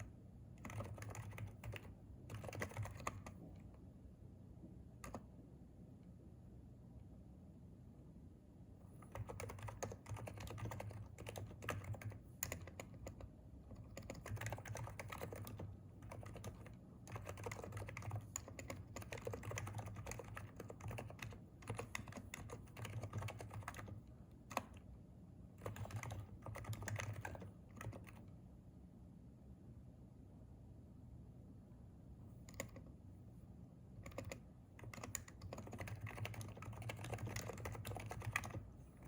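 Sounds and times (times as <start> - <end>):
keyboard typing: 0.0 - 3.8, 5.0 - 5.3, 9.0 - 24.9, 25.5 - 28.4, 32.4 - 32.9, 34.0 - 38.8.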